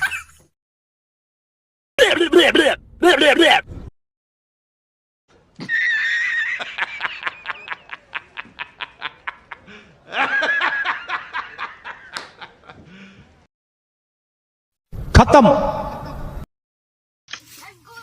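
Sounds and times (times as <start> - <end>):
high-pitched laughter: 0.0 - 0.4, 5.6 - 12.0.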